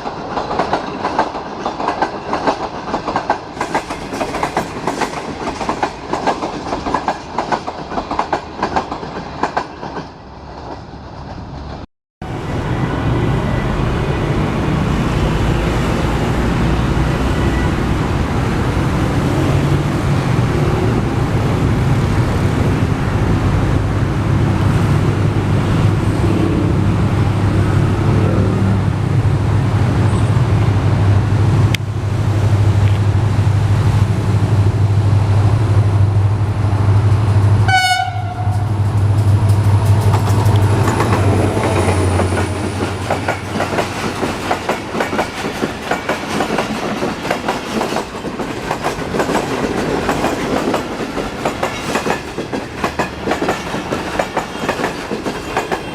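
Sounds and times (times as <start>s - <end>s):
locomotive horn blast: 37.6s - 38.8s.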